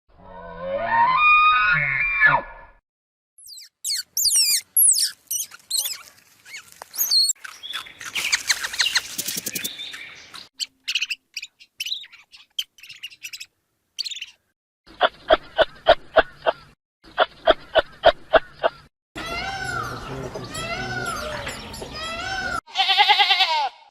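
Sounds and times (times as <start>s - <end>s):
songbird chirping and singing: 3.4s - 14.4s, 17.3s - 22.6s.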